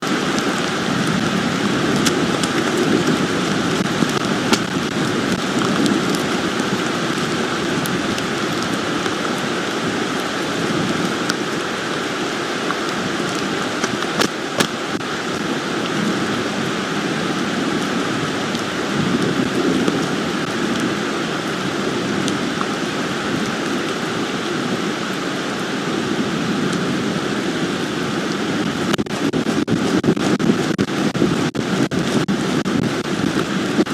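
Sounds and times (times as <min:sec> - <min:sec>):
sharp raindrop hits: 0:00.0 - 0:16.6, 0:28.6 - 0:33.9
steady rain falling: 0:00.0 - 0:33.9.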